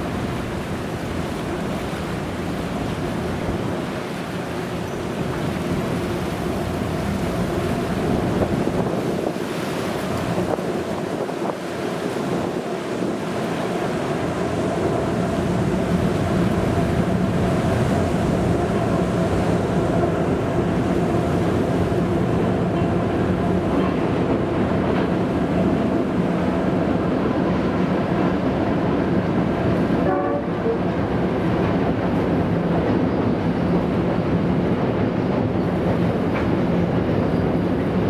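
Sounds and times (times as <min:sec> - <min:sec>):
diesel locomotive tones: 0:29.5 - 0:31.6.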